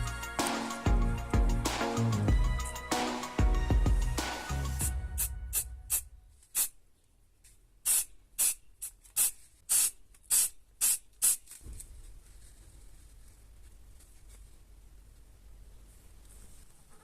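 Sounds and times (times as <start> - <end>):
short bursts of spraying hiss: 4.8 - 6.8, 7.8 - 11.5.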